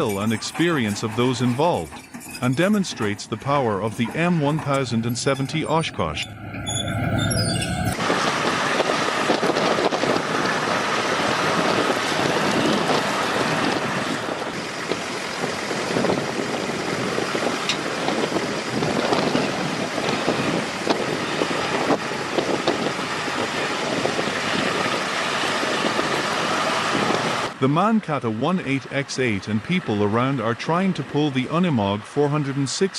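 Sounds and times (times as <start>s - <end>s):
wind on microphone: 6.3s - 27.6s.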